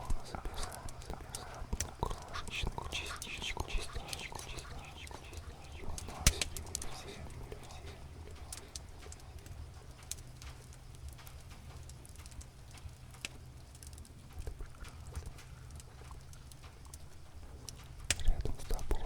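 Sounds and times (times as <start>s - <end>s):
cat purring: 0.0s - 10.4s, 14.2s - 19.0s
wood fire crackling: 0.0s - 19.0s.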